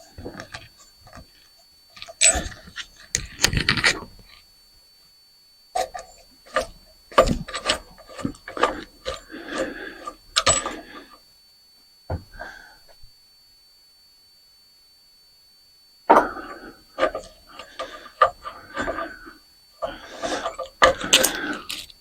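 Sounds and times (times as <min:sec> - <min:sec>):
metal parts clinking and rattling: 0:00.2 - 0:04.4, 0:05.8 - 0:10.8, 0:20.2 - 0:22.0.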